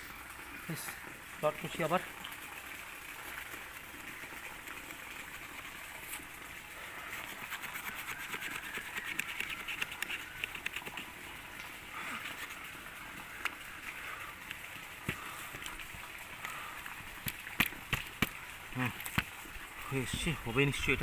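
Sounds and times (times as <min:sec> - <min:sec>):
folding saw cutting branch: 0:06.9 - 0:11.1.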